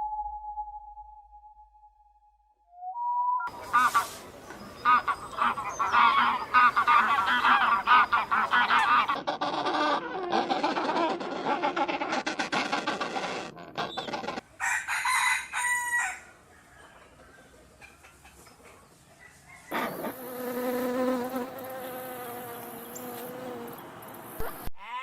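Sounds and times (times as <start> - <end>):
faint hiss: 3.5 - 5.8
chickens clucking: 3.5 - 14.6, 16.6 - 19.9
rooster crowing: 14.6 - 17.2.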